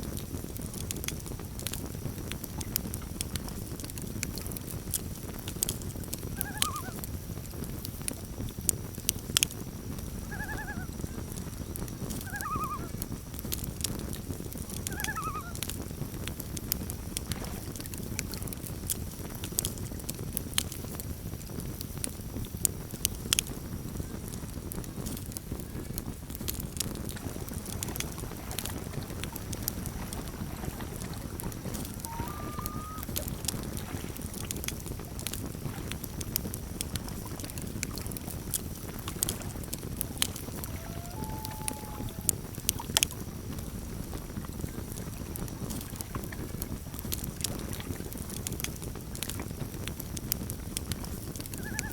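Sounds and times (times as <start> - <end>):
campfire crackling and popping: 0.0 - 51.9
short bird calls: 6.4 - 6.9, 12.3 - 12.9, 14.9 - 15.6, 31.9 - 33.2, 40.6 - 42.4, 51.6 - 51.9.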